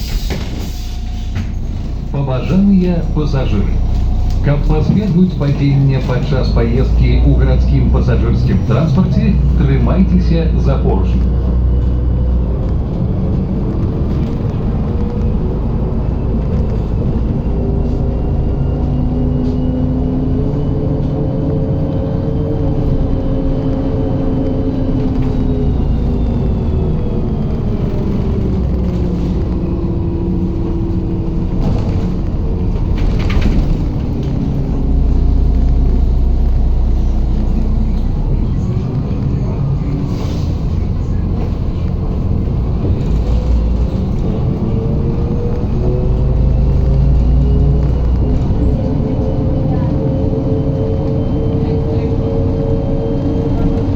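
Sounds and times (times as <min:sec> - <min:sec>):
bus engine and road rumble: 0:00.0 - 0:53.9.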